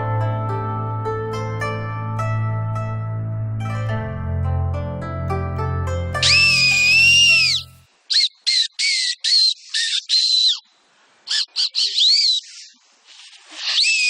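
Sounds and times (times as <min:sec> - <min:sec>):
plucked-string music: 0:00.0 - 0:07.8
shrill squawky whistling: 0:06.2 - 0:10.7, 0:11.3 - 0:12.8, 0:13.5 - 0:14.0.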